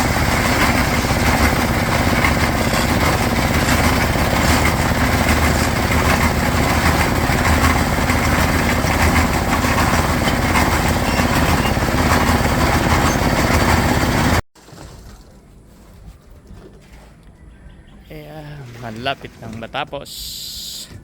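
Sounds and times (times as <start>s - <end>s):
small engine running: 0.0s - 14.4s.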